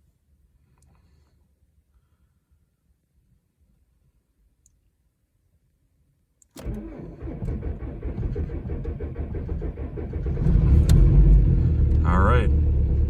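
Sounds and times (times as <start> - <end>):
click: 4.6 - 4.8, 6.4 - 6.7
starter cranking engine: 6.6 - 12.9
diesel engine running: 6.7 - 13.0.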